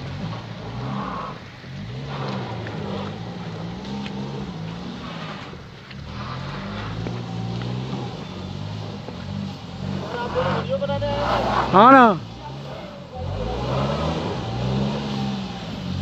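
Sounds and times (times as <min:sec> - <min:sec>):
vehicle engine revving: 0:00.0 - 0:16.0
wheels spinning in slush: 0:00.0 - 0:16.0.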